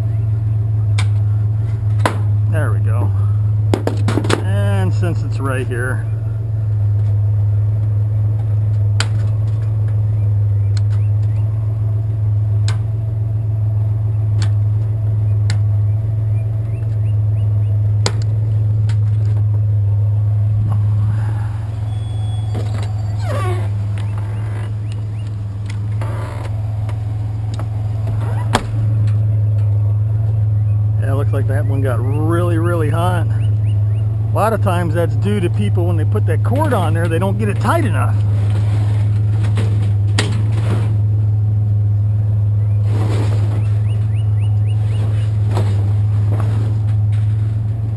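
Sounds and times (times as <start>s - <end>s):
vehicle engine idling: 0.0s - 47.9s
scrap scraping and rattling: 36.5s - 41.0s, 42.8s - 44.0s, 44.8s - 47.8s.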